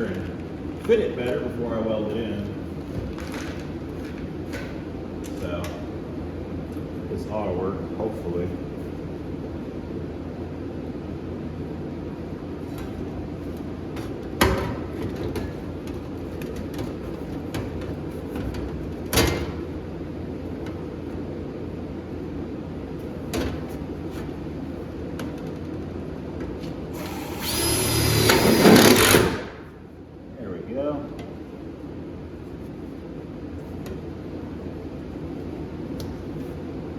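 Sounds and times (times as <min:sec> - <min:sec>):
steady hum: 0:00.0 - 0:36.9
power drill whirring: 0:26.9 - 0:29.5.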